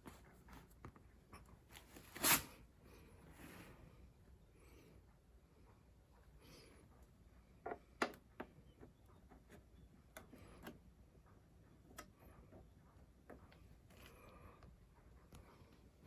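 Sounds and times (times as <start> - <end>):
small clicks and taps: 7.6 - 10.8.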